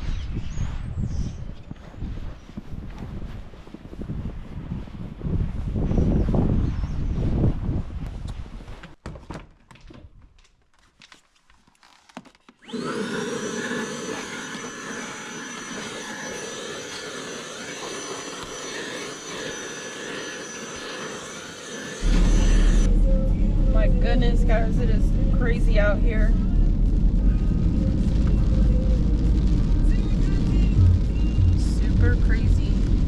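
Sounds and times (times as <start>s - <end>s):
electric motor whining: 12.6s - 33.0s
rushing noise: 14.7s - 33.0s
low rumble: 22.0s - 33.0s.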